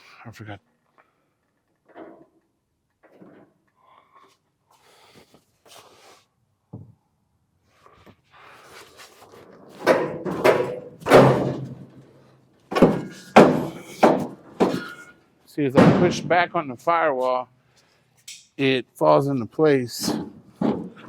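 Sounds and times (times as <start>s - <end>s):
loud metal clunks and bangs: 9.7s - 12.1s, 12.7s - 15.1s, 15.7s - 16.7s, 20.0s - 21.0s.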